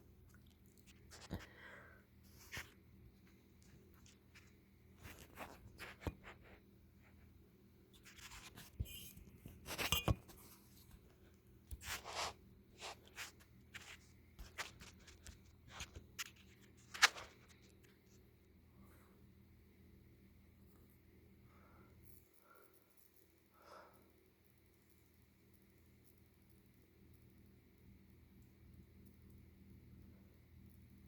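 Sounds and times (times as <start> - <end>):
rustles and scrapes: 0.3 - 1.6, 2.2 - 18.3.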